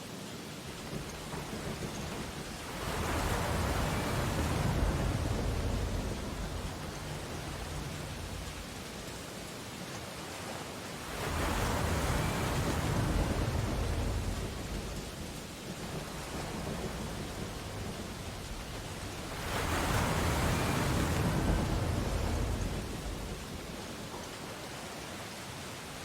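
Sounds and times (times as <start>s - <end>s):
waves breaking on beach: 0.0s - 26.0s.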